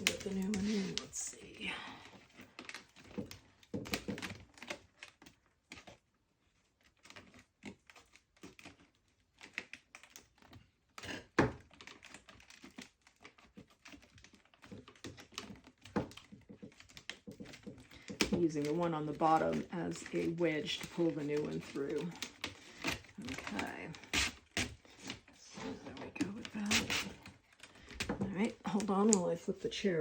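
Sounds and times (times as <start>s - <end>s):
splint strand scraping through weave: 0.0s - 3.2s, 11.7s - 30.0s.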